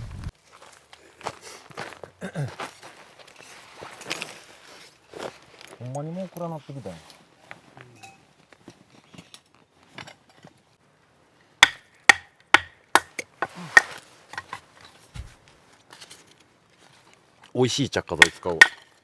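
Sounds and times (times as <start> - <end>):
firewood being chopped: 11.6 - 14.6, 15.2 - 15.4, 18.2 - 19.0.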